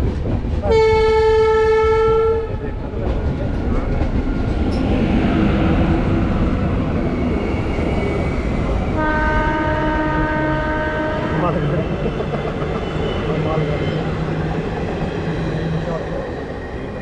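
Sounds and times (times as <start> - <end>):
moving train rumbling: 0.0 - 17.0
train horn blast: 0.7 - 2.6, 8.9 - 11.6.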